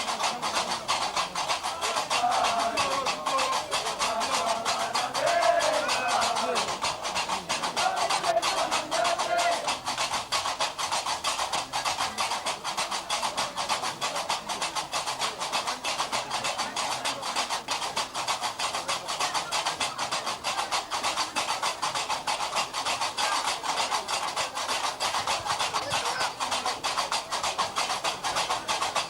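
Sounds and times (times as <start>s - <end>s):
iron castanets clacking: 0.0s - 11.6s.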